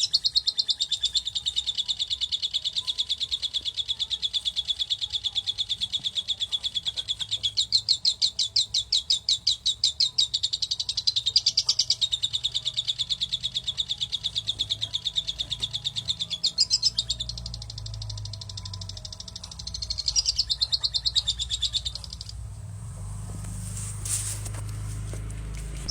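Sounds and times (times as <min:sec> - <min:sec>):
young bird chirping: 0:00.0 - 0:24.5.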